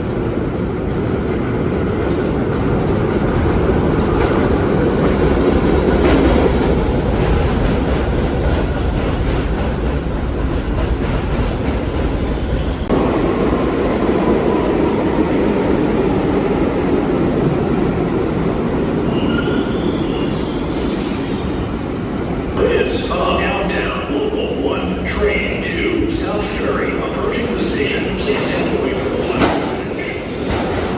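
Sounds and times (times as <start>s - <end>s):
train rumbling on track: 0.0s - 30.9s
wheels squealing against rails: 19.0s - 21.7s.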